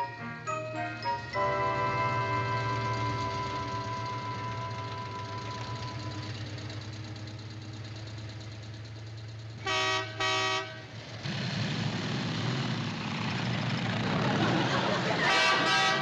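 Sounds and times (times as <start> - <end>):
engine hum: 0.0 - 16.0
road noise: 0.0 - 16.0
vehicle horn toots: 1.4 - 6.3, 9.6 - 10.9, 15.2 - 16.0.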